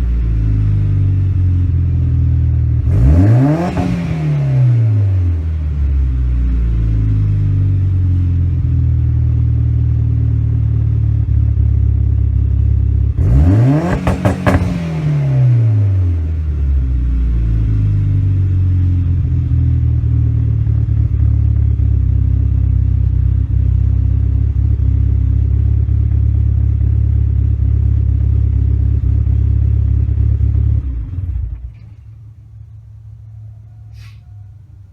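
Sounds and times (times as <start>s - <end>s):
engine revving: 2.8s - 5.6s, 13.2s - 16.3s
exhaust crackles: 13.2s - 16.2s
car engine idling: 13.8s - 16.3s, 18.5s - 34.9s.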